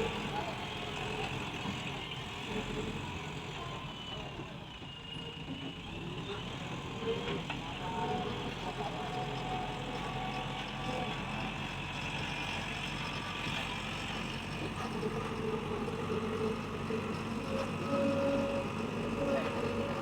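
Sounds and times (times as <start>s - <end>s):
heavy diesel engine humming: 0.0s - 20.0s
faint high whining: 14.5s - 20.0s.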